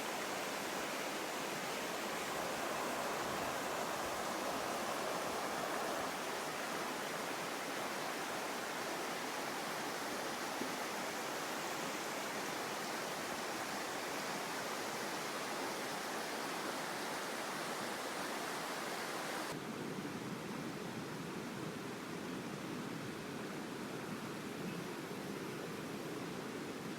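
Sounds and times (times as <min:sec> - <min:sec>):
mountain stream rushing: 0:00.0 - 0:19.6.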